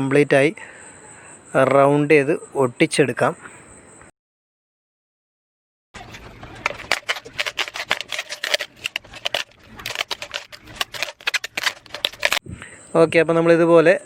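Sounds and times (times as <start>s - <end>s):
sticky tape peeling and crackling: 6.0s - 12.4s.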